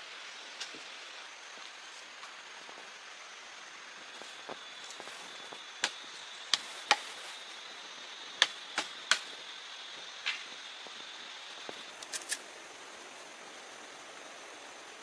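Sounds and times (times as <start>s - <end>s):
faint hiss: 0.0s - 15.0s
blade chopping into wood: 5.0s - 7.5s, 8.4s - 9.3s.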